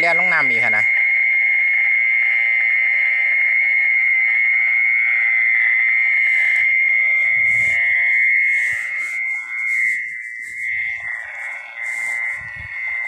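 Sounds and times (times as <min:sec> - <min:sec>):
night insects chorus: 0:00.0 - 0:13.0
microphone handling rumble: 0:06.4 - 0:13.0.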